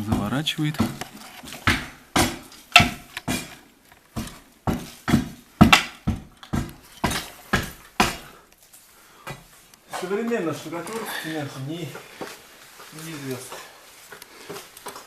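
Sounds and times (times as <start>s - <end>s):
hammer striking brick and plaster: 0.1s - 3.6s, 4.2s - 8.4s.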